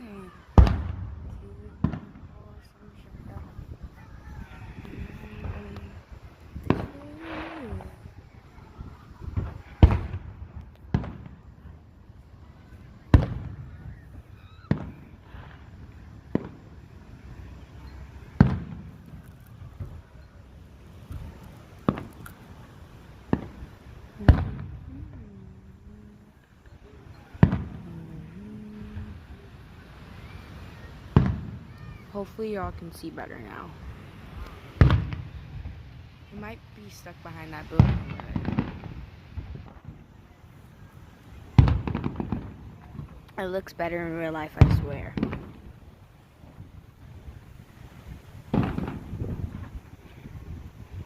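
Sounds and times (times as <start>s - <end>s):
fireworks bangs: 0.0s - 20.2s, 20.8s - 51.0s.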